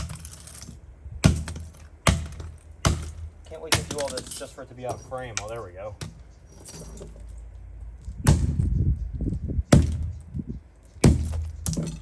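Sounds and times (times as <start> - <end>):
rattle: 9.8 - 12.0.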